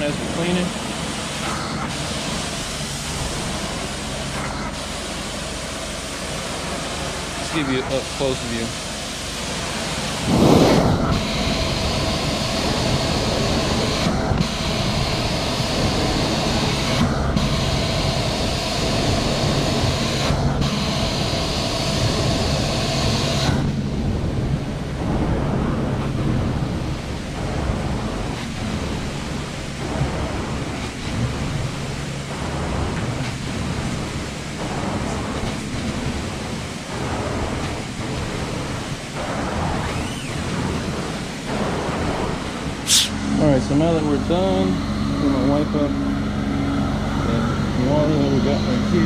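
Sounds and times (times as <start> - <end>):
low suction rush: 10.2 - 11.3, 42.9 - 43.2
carpet cleaning wand hissing: 42.9 - 43.1.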